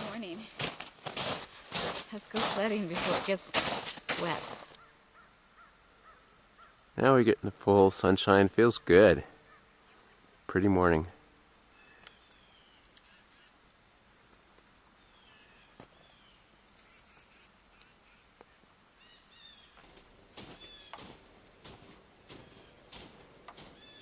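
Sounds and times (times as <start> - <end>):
birds chirping: 4.2 - 13.6, 14.4 - 24.0.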